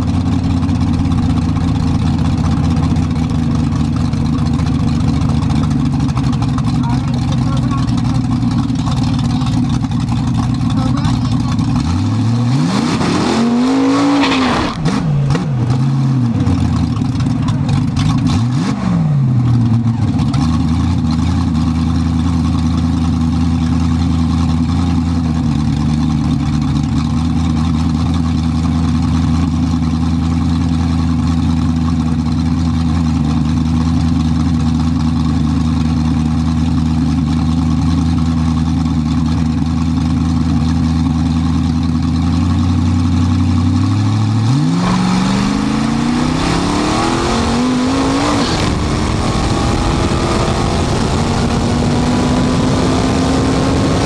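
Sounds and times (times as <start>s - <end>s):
car engine idling: 0.0s - 12.7s, 14.7s - 54.0s
engine throttle blips: 43.1s - 54.0s.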